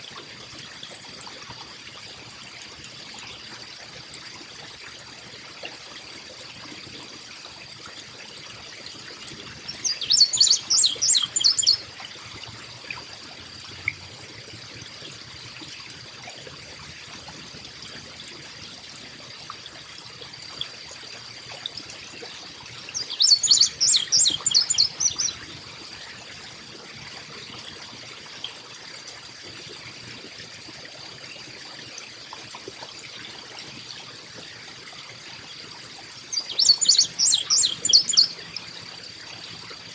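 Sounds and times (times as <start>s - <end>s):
water trickling: 0.0s - 39.9s
chickadee calling: 9.6s - 11.9s, 22.9s - 25.4s, 36.3s - 38.5s.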